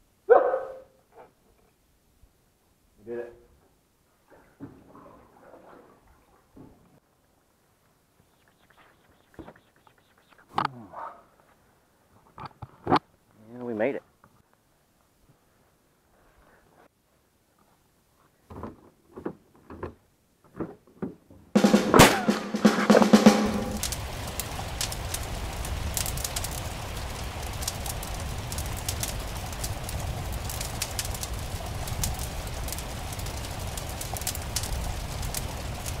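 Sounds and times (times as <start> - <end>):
sudden loud burst: 21.6 - 24.3
campfire crackling and popping: 23.2 - 36.0.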